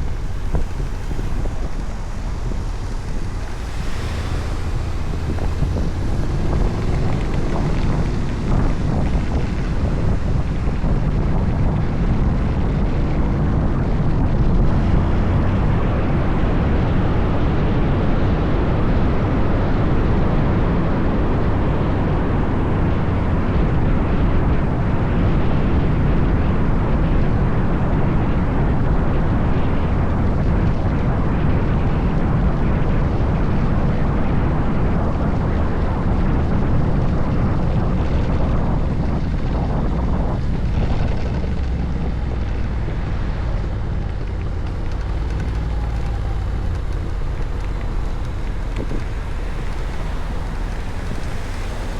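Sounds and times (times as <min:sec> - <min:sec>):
scooter engine and road noise: 0:00.0 - 0:51.9
wind rushing over microphone: 0:00.0 - 0:51.9.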